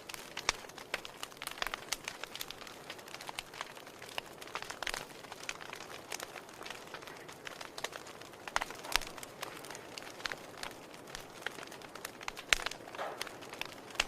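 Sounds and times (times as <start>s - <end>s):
fire crackling and popping: 0.0s - 14.0s.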